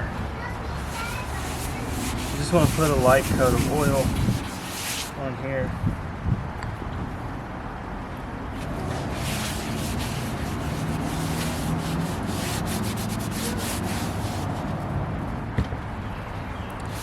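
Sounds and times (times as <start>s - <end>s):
paper towel rubbing cast iron skillet: 0.8s - 5.2s, 8.7s - 14.6s.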